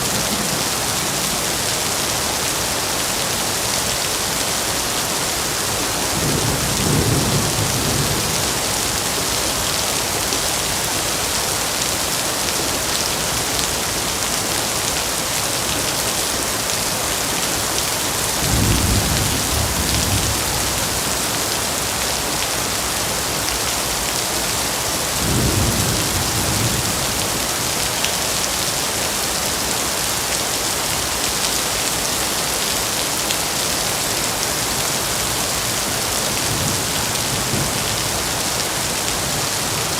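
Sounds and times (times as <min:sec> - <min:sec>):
heavy rain: 0:00.0 - 0:39.9
low rolls of thunder: 0:18.4 - 0:21.2.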